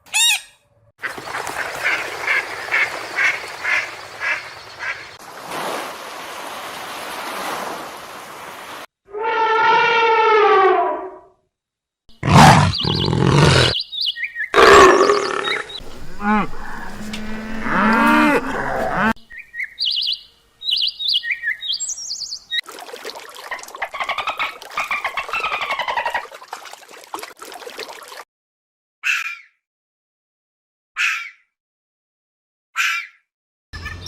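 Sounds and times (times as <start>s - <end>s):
animal calls: 12.2s - 13.8s, 14.5s - 19.2s.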